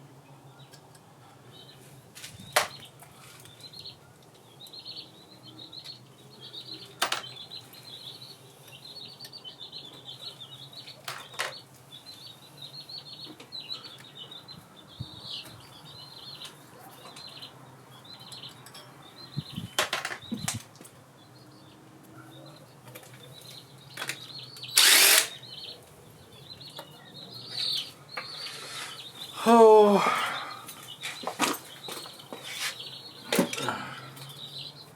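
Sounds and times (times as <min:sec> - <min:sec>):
small birds chirping: 0:00.0 - 0:34.9
power tool burst: 0:24.8 - 0:25.4.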